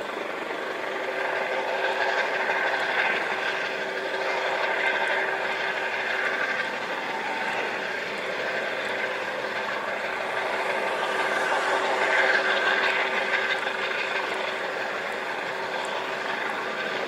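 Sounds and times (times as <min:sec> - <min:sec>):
helicopter engine and rotor: 0:00.0 - 0:17.0.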